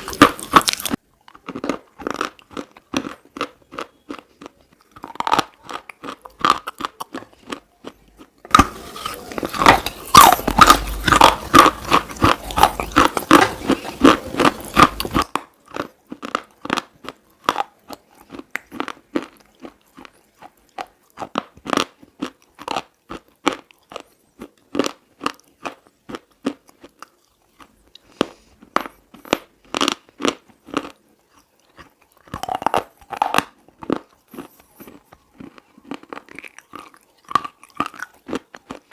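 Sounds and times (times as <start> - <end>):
slate being crunched and chewed: 0.0 - 38.9.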